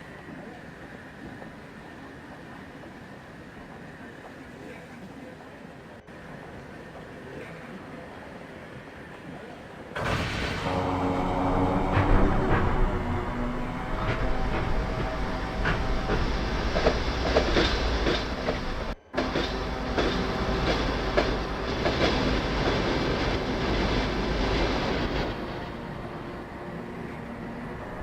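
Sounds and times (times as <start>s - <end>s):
train rumble: 0.0s - 28.0s
train wheels clicking over rail joints: 14.0s - 25.4s.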